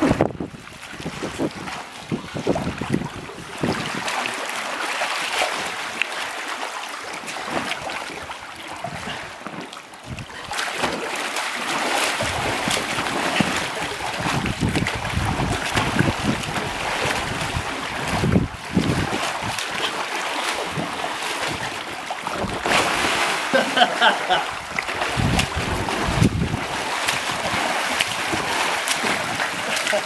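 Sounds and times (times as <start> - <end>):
wind buffeting microphone: 0.0 - 4.1, 10.0 - 10.6, 12.2 - 19.7, 24.5 - 28.5
pool water splashing: 0.0 - 30.0.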